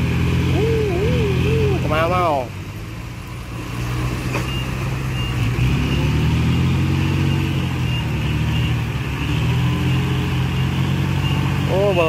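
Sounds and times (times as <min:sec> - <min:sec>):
heavy diesel engine under load: 0:00.0 - 0:12.0.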